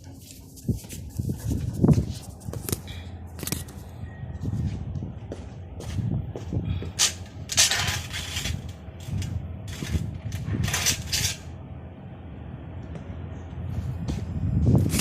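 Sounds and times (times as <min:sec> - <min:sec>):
window parts scraping and sliding: 0:07.0 - 0:11.5.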